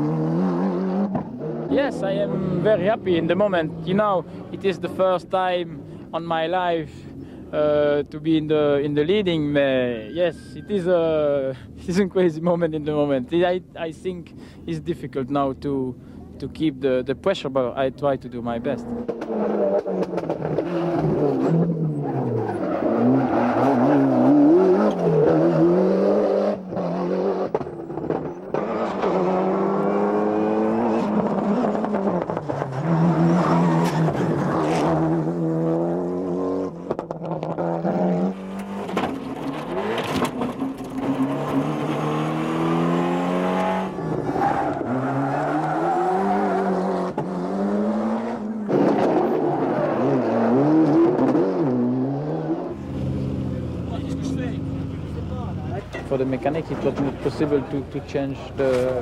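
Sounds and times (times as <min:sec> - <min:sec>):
rally car engine revving: 0:00.0 - 0:05.2, 0:18.7 - 0:59.0.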